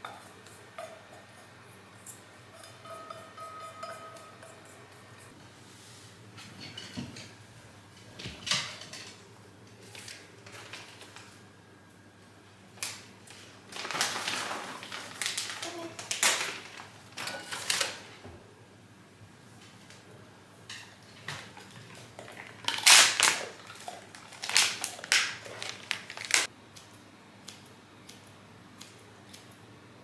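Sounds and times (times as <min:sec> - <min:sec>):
rustling and handling noise: 0:07.8 - 0:11.5, 0:12.8 - 0:18.2, 0:20.8 - 0:26.5.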